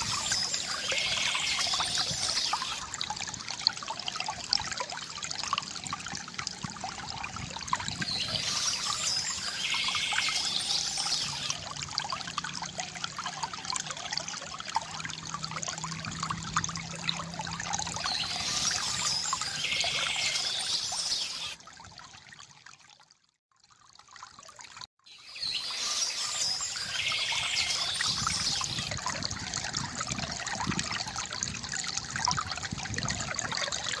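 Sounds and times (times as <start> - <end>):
water trickling from a fountain: 0.0 - 34.0
birds chirping: 7.9 - 11.6, 18.0 - 21.6.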